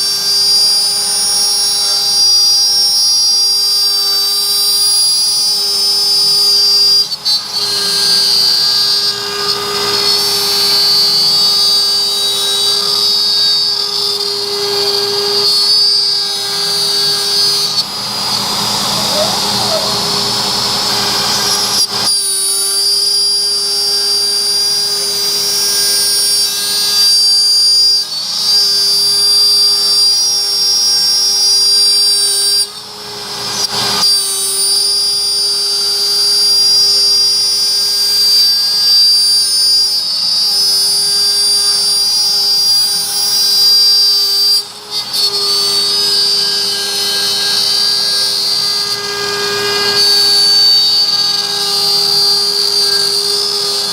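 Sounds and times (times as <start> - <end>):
bit cutting wood low tone: 0.0 - 28.0
router spindle high whine: 0.0 - 53.9.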